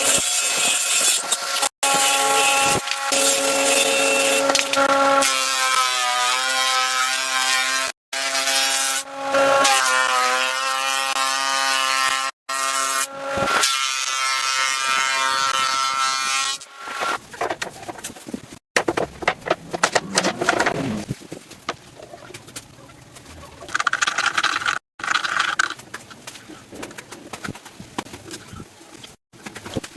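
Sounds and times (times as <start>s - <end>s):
power tool cutting wood: 0.0s - 17.2s
knocks and scrapes on wood: 16.9s - 22.7s.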